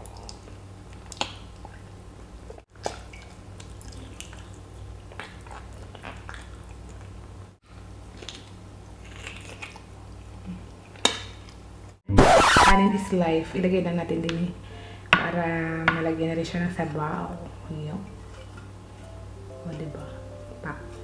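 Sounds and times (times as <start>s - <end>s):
wet chewing sounds: 0.0s - 12.0s
low steady hum: 0.0s - 21.0s.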